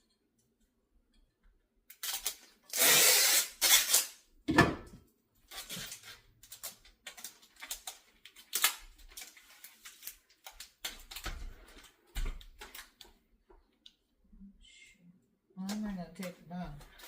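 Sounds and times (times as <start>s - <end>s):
duct tape pulled off roll: 1.9s - 4.2s
tape rubbed onto fan: 2.1s - 4.1s.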